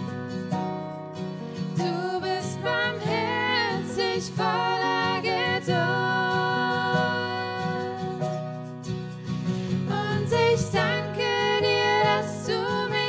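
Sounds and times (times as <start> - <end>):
acoustic guitar: 0.0 - 13.0
person singing worship song: 1.7 - 8.4, 9.6 - 13.0.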